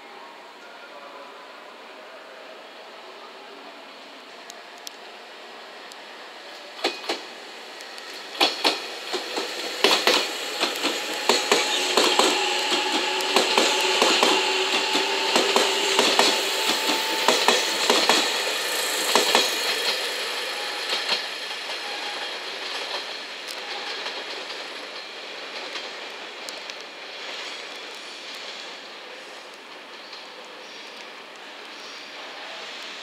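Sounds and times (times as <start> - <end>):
train whine: 0.0 - 33.0
train wheels clacking over rail joints: 6.8 - 28.4.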